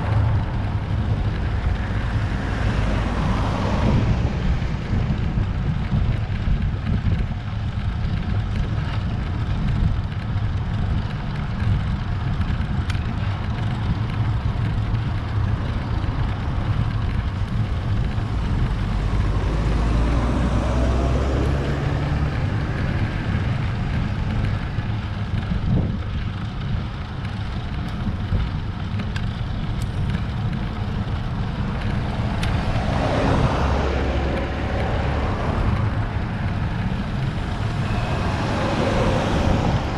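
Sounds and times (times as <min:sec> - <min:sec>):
road rumble: 0:00.0 - 0:39.9
wind buffeting microphone: 0:00.0 - 0:39.9.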